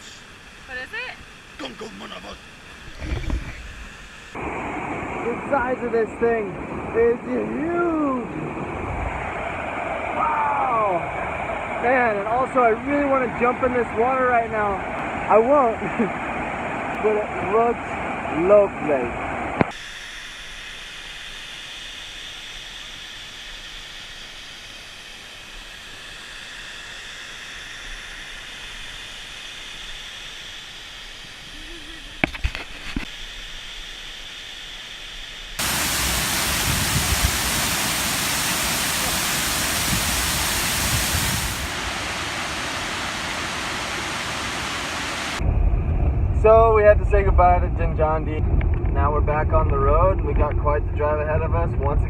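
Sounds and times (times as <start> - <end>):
waterfall rushing water: 35.6 - 45.4.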